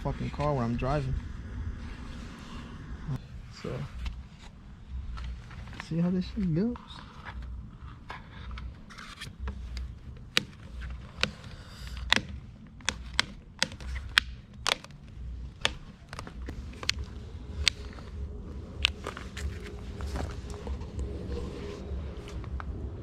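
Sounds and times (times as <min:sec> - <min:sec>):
low rumble: 0:00.0 - 0:11.1, 0:15.1 - 0:23.0
plastic clicks and taps: 0:09.7 - 0:15.0.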